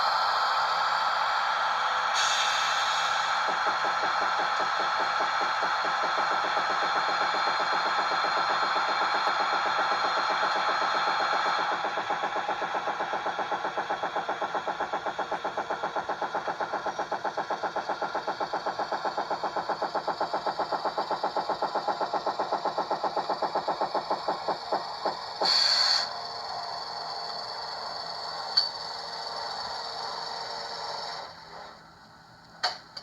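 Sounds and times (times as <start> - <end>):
diesel engine chugging: 0.1 - 31.2.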